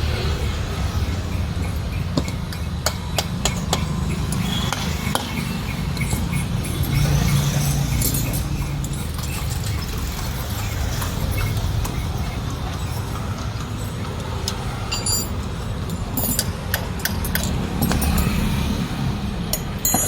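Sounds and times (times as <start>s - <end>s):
metal tools clinking and tapping: 2.1s - 10.2s, 11.8s - 18.7s, 19.5s - 20.0s.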